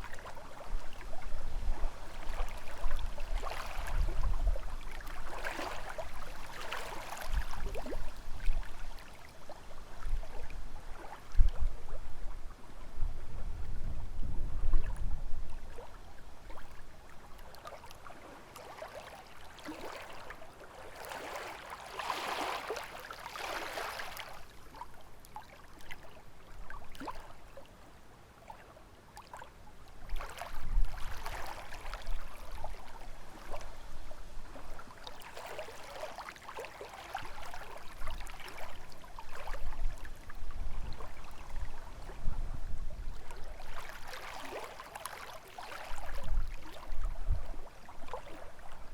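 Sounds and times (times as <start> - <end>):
waves lapping against shore: 0.0 - 12.8, 14.8 - 48.9
wind rumble in microphone: 0.0 - 17.0, 30.0 - 34.8, 37.3 - 43.9, 46.0 - 48.9.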